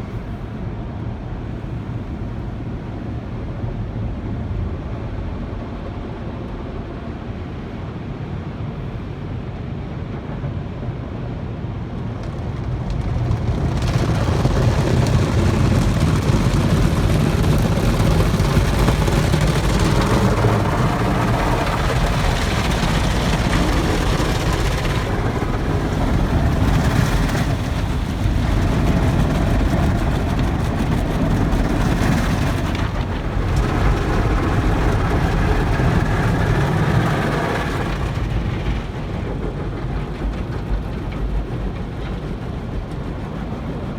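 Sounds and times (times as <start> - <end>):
car wash machinery rushing: 10.1 - 43.9.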